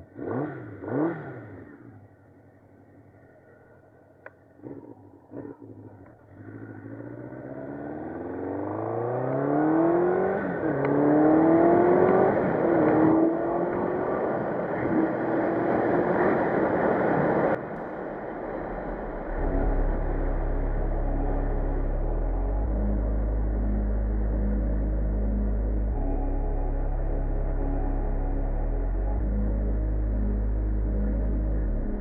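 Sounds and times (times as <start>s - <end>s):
motorcycle engine accelerating hard: 0.0s - 2.2s, 4.6s - 32.0s.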